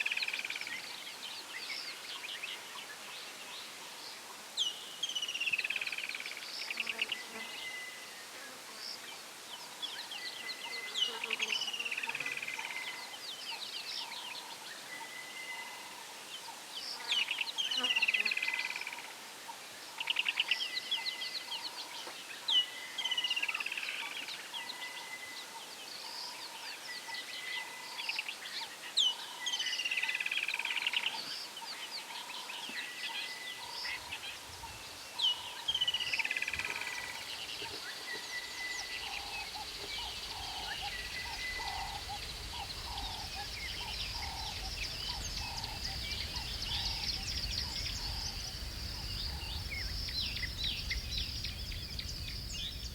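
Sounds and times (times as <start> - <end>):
soft low repeated bird calls: 18.5 - 52.9
birds chirping: 32.6 - 52.9.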